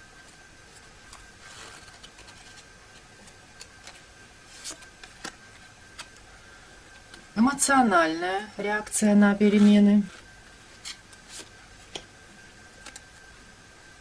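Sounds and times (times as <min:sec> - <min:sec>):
cards rustling: 0:01.1 - 0:06.2.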